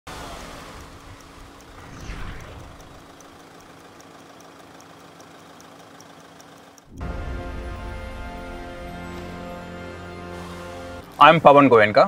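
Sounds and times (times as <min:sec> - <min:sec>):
engine idling: 0:00.1 - 0:11.2
faint high ticking: 0:00.4 - 0:07.1
rushing swell: 0:01.6 - 0:03.4.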